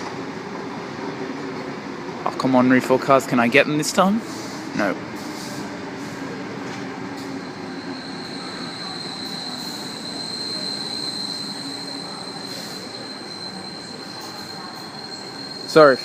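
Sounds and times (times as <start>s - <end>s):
electric train rumbling: 0.0s - 16.0s
high-pitched wheel squeal: 7.2s - 16.0s.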